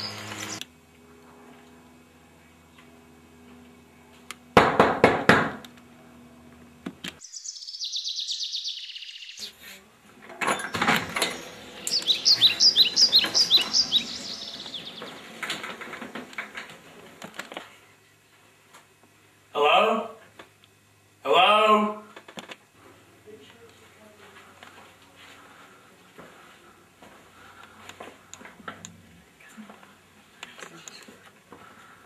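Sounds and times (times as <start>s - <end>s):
small birds chirping: 0.0s - 0.6s, 7.2s - 9.8s, 10.6s - 15.6s.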